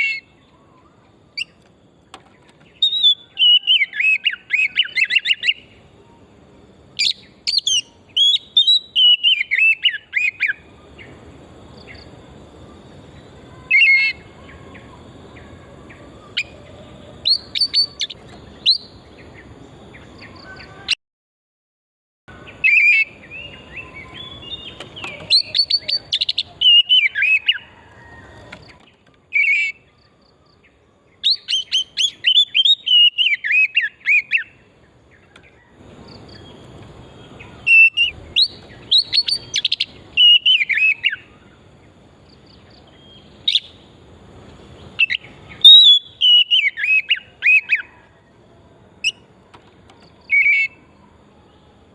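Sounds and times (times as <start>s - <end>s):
bird whistles and trills: 2.4s - 5.7s, 7.0s - 10.6s, 17.2s - 19.0s, 22.6s - 27.7s, 31.2s - 34.6s, 37.6s - 41.3s, 45.0s - 47.9s, 50.3s - 50.9s.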